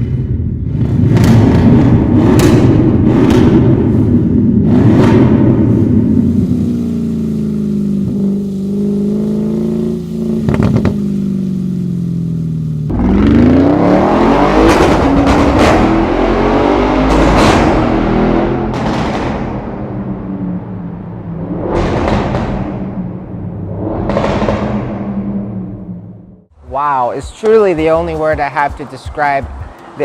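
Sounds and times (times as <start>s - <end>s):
car engine accelerating: 0.0s - 26.7s
exhaust cracks: 0.0s - 30.0s.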